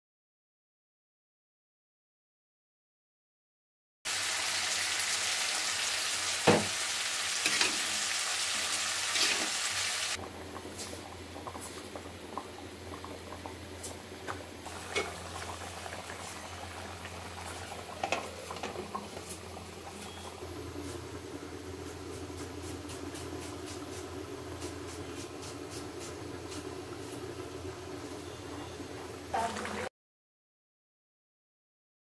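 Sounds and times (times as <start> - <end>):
vegetables sizzling in oil: 4.1 - 12.0, 13.6 - 29.9.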